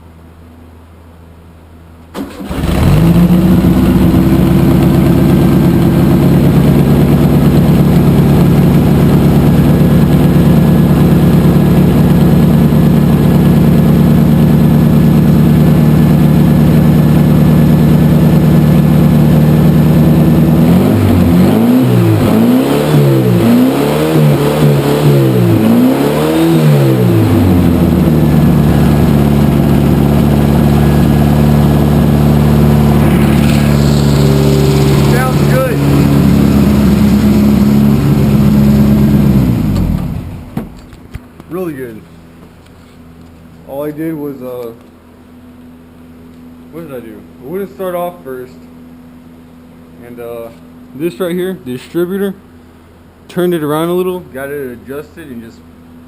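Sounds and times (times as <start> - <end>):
car engine idling and revving: 2.4 - 41.4.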